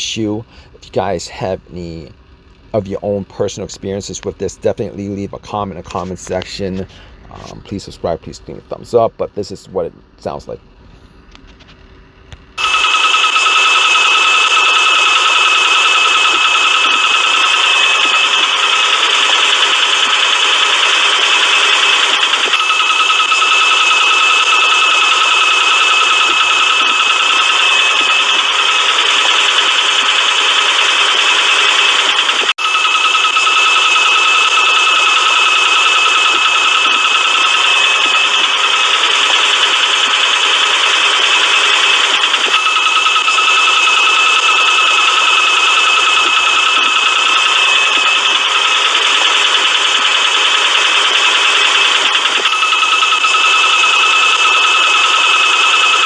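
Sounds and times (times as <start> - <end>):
steady high whine: 0.0 - 56.0
engine running: 0.2 - 56.0
rattling timing belt tensioner: 12.4 - 56.0
steady high tone: 12.6 - 56.0.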